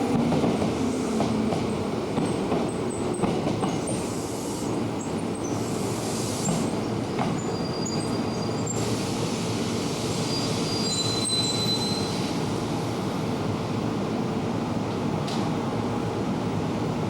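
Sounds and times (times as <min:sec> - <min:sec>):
train rolling rumble: 0:00.0 - 0:17.0
high wheel squeals: 0:07.4 - 0:08.9, 0:10.2 - 0:12.3.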